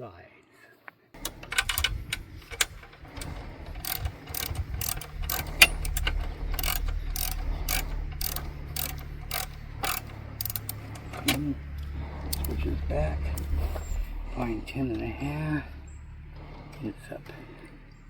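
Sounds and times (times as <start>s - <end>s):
ratchet wrench clicking: 1.2s - 12.7s
steady low hum: 1.2s - 18.0s.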